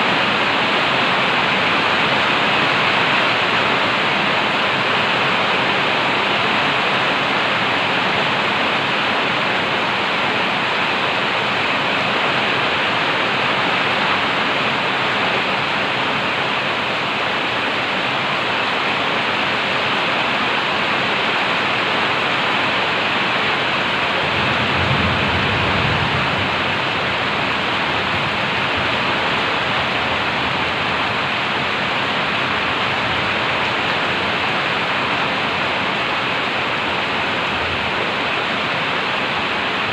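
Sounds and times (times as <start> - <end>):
heavy rain hissing: 0.0 - 39.9
low rumble: 24.2 - 28.3.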